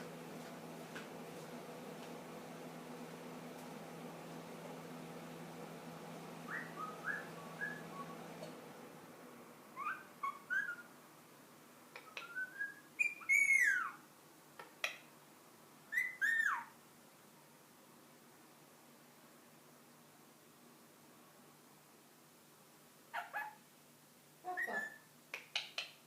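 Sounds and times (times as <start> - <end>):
parakeet whistling: 6.5 - 8.2, 9.8 - 10.9, 12.1 - 14.0, 15.9 - 16.7, 24.5 - 25.0.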